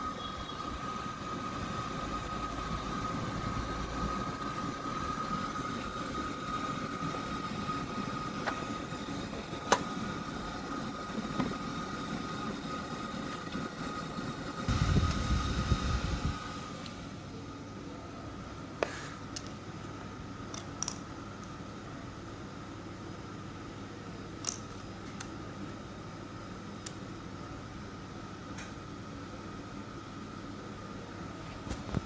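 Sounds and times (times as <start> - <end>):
small machine whining: 0.0 - 18.4
fan-like hiss: 0.0 - 32.0.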